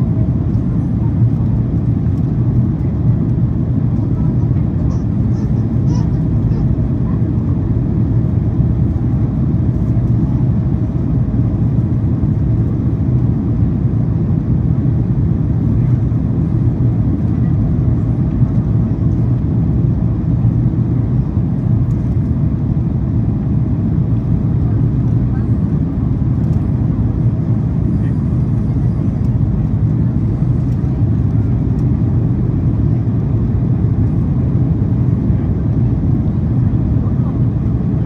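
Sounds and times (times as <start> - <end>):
airliner cabin rumble: 0.0 - 38.0.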